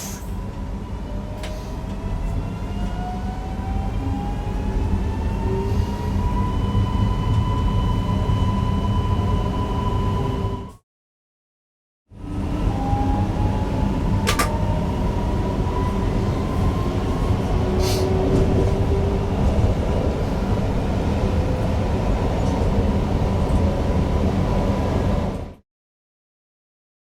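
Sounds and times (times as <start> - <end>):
train running on track: 0.0 - 10.8, 12.2 - 25.6
sharp click: 14.3 - 14.6.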